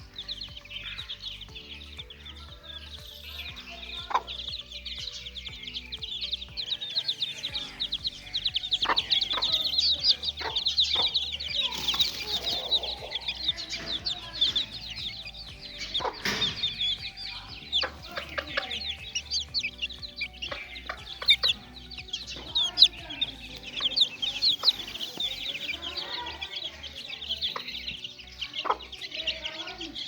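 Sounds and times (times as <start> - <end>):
chicks peeping: 0.0 - 30.0
sharp knocks: 15.8 - 17.2.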